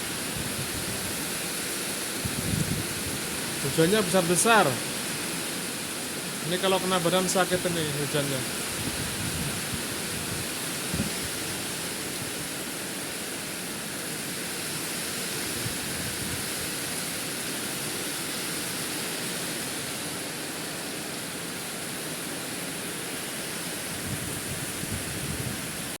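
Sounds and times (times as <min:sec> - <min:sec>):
strong wind: 0:00.0 - 0:06.5, 0:07.4 - 0:17.8, 0:23.6 - 0:26.0
heavy rain pouring: 0:00.0 - 0:26.0.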